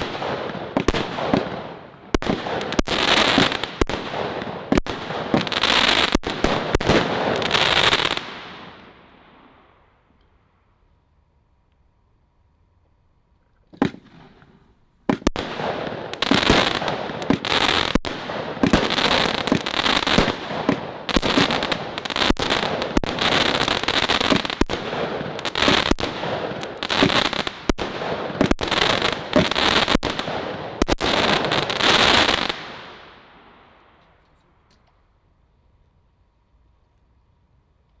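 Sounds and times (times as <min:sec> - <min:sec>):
rapid firework shots and bursts: 0:00.0 - 0:08.9, 0:13.8 - 0:33.2.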